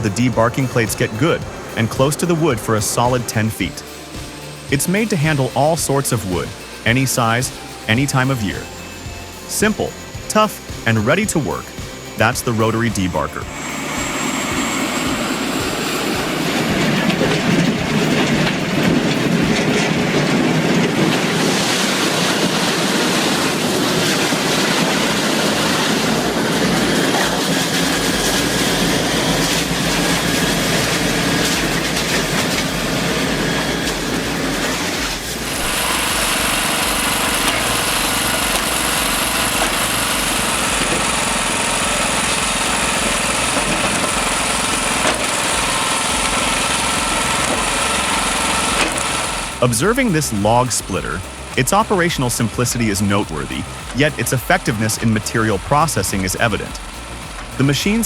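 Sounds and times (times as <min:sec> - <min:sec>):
machine engine high whine: 0:00.0 - 0:58.0
debarker rumbling and clattering: 0:12.6 - 0:22.5.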